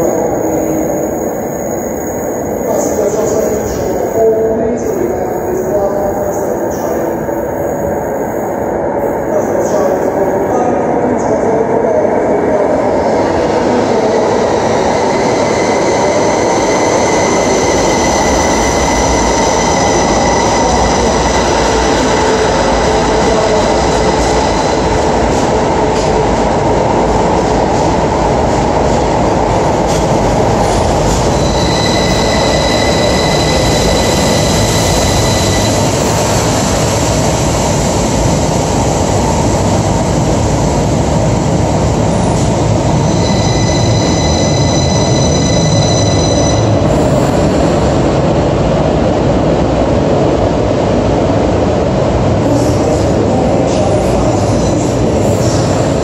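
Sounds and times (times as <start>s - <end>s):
train rumble: 0.0s - 56.0s
wheels and brakes squealing: 31.3s - 36.4s, 43.0s - 46.7s.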